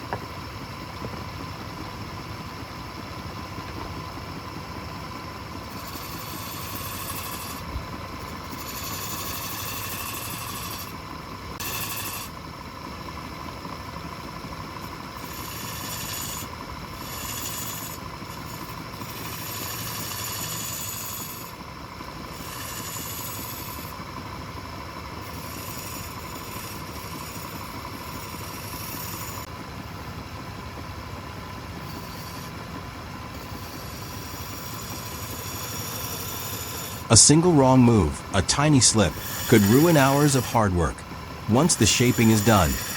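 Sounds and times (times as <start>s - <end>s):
lathe motor hum: 0.1s - 37.5s, 39.0s - 42.9s
chisel cutting spinning wood: 3.6s - 29.5s, 30.4s - 37.8s, 38.6s - 42.9s.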